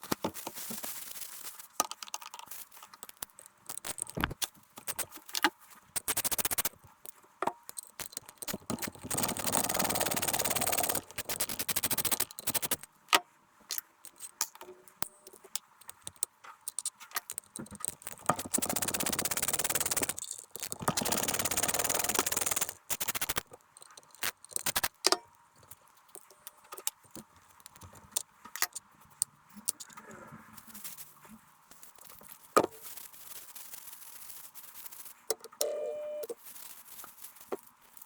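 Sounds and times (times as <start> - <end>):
sharp clicks: 6.0 - 6.8, 7.7 - 12.9, 15.3 - 27.0
metal parts clinking and rattling: 7.7 - 12.8, 15.3 - 27.0.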